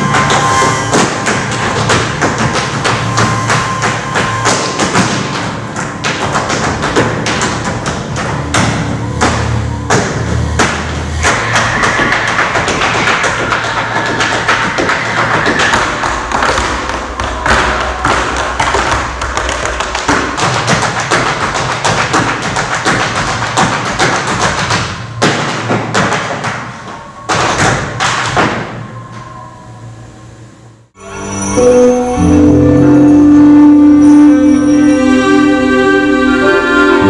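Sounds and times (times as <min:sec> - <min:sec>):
tap shoes beating rhythms: 0:00.0 - 0:28.8.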